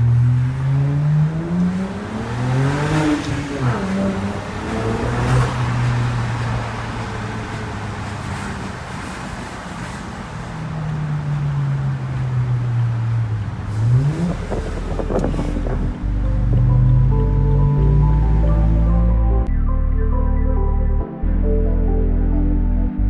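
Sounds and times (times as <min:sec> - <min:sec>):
engine revving: 0:00.0 - 0:09.3, 0:11.2 - 0:19.5
car engine exhaust drone: 0:00.0 - 0:19.5.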